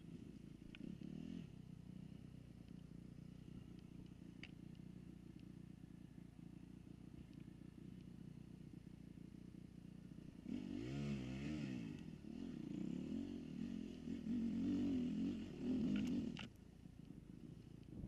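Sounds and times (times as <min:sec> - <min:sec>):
dirt bike engine revving: 0:10.2 - 0:16.5.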